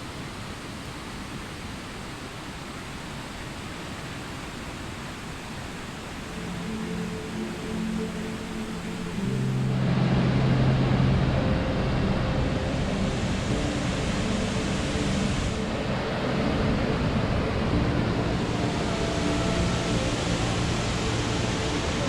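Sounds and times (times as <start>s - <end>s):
waterfall roaring: 0.0s - 22.0s
faint background music: 6.2s - 22.0s.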